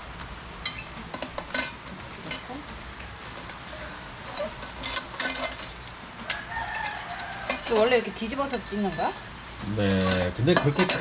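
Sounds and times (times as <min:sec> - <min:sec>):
metal pot clinking: 0:00.6 - 0:02.5, 0:04.3 - 0:11.0.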